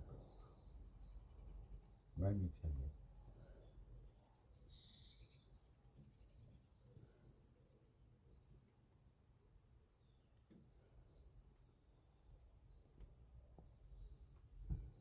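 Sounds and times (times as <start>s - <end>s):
small songbird chirping and trilling: 0.2s - 2.0s, 3.0s - 7.6s, 12.6s - 15.0s.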